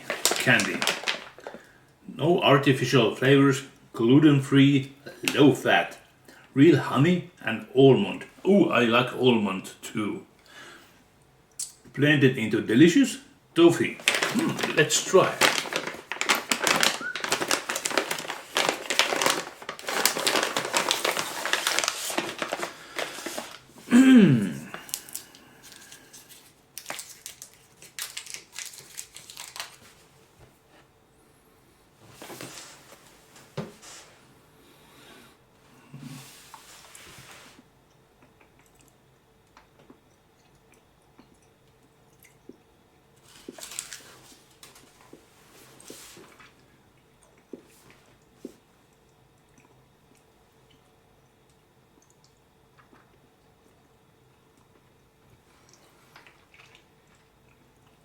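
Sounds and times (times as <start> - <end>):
candy packaging crinkling: 0.0 - 1.7, 13.7 - 30.1, 43.2 - 45.2.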